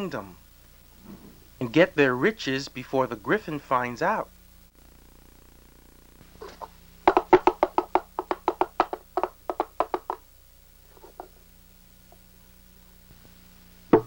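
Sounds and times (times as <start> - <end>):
sharp wooden knocks: 6.5 - 10.2.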